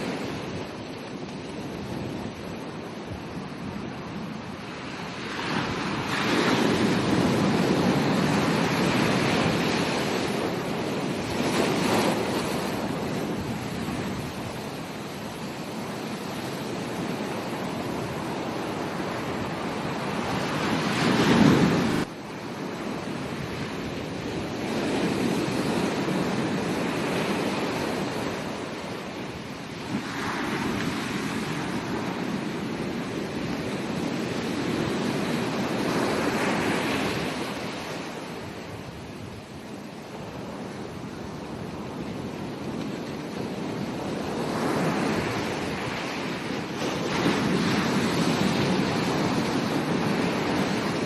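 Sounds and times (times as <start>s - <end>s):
ocean waves breaking on beach: 0.0s - 51.0s.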